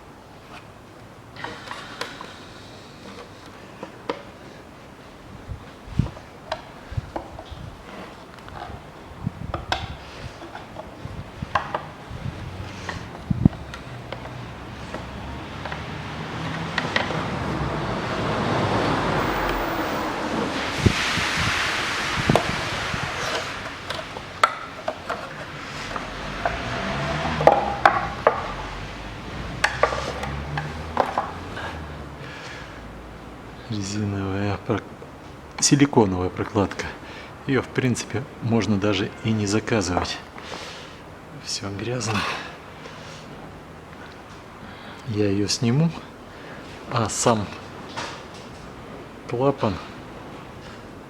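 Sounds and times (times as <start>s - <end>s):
engine parts clicking and knocking: 6.0s - 20.4s, 23.3s - 28.6s, 29.4s - 32.3s
hiss: 19.2s - 24.2s.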